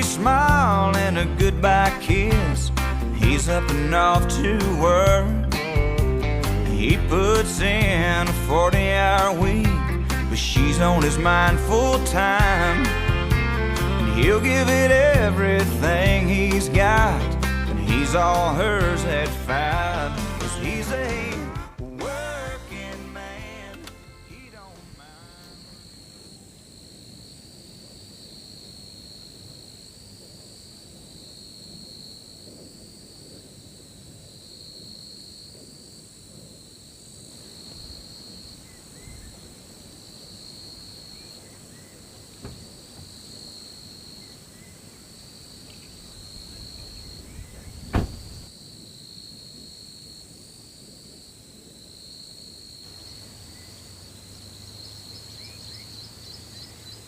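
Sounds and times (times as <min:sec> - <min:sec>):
insects trilling: 0:24.3 - 0:57.0.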